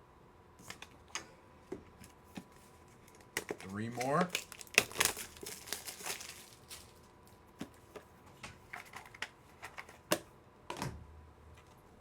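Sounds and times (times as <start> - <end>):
plastic packaging clicks and taps: 3.2 - 6.4.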